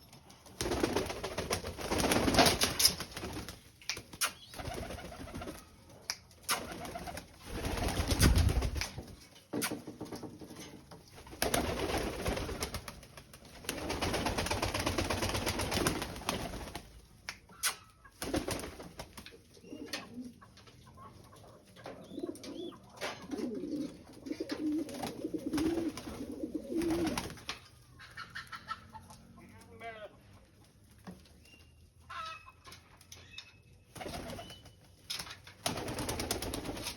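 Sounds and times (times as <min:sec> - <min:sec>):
bird cooing: 0:22.0 - 0:26.8.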